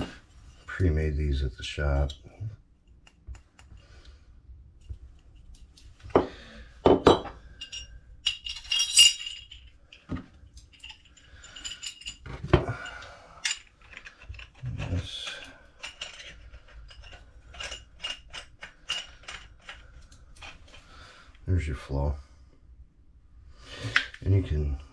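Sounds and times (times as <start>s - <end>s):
metal pipe fittings clinking: 7.0s - 20.8s.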